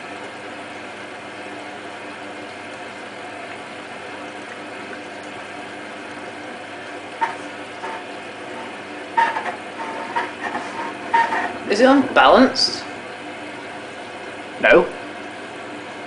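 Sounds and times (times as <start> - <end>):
washing machine hum: 0.0 - 16.0.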